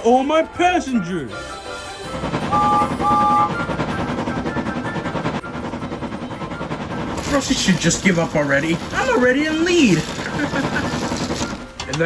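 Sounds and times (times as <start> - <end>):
train chugging: 0.2 - 12.0
steam engine whistle: 2.4 - 5.1.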